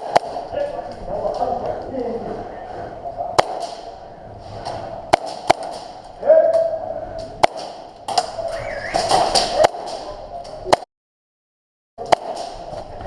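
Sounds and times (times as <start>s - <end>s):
distant voices calling: 5.8s - 10.3s.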